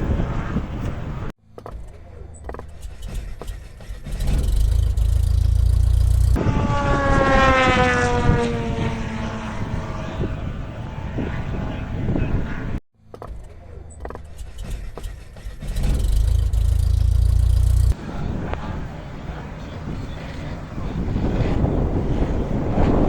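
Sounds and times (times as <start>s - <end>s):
model aircraft engine passing by: 4.2s - 12.8s, 15.8s - 23.0s.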